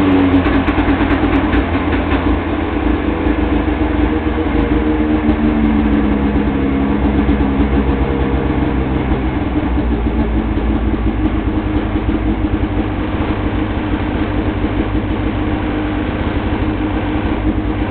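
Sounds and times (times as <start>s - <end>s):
snowmobile engine idling: 0.0s - 17.9s.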